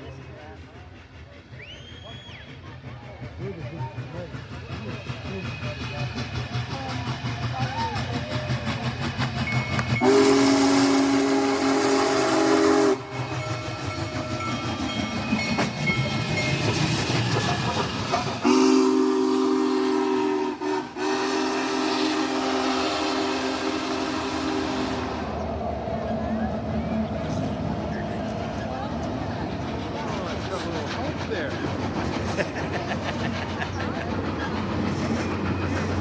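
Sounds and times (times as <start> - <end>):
steam locomotive running gear rumble: 0.0 - 36.0
locomotive chime whistle: 1.6 - 2.6, 9.5 - 17.0, 18.4 - 25.3.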